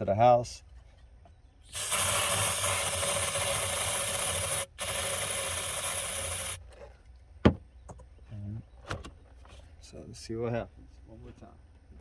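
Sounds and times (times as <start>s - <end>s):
aerosol can spraying hiss: 1.7s - 6.6s.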